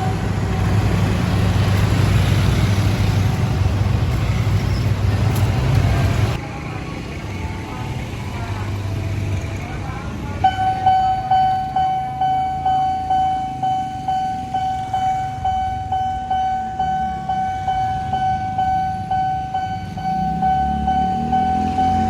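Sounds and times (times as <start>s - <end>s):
level crossing bell ringing: 10.4s - 22.0s.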